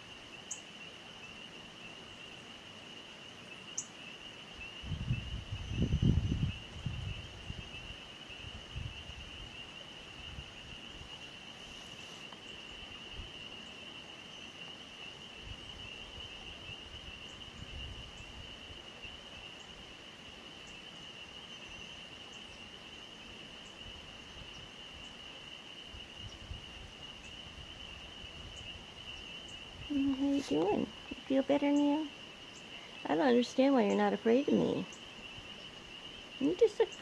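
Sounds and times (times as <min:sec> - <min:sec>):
faint ticks: 0:11.8 - 0:12.6.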